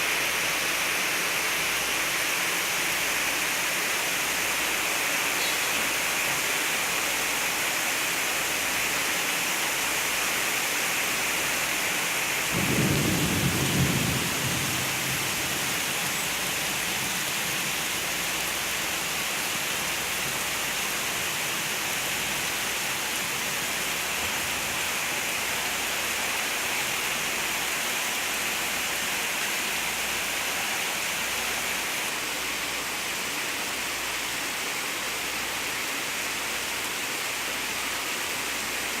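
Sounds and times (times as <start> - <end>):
steady rain pouring: 0.0 - 39.0
low rumble of thunder: 12.5 - 16.6.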